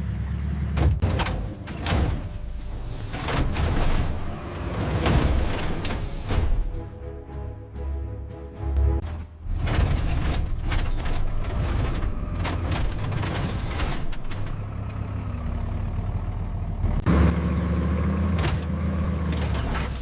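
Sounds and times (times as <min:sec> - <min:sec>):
heavy vehicle engine rumbling: 0:00.0 - 0:06.8, 0:08.9 - 0:20.0
metallic knocks and clanks: 0:00.8 - 0:06.6.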